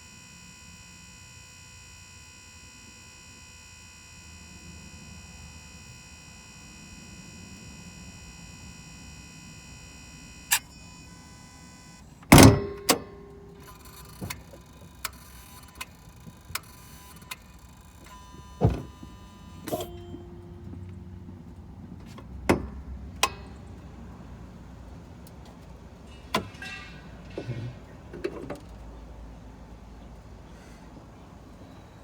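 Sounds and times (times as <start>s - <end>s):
engine bay clicks and clacks: 12.2s - 32.0s.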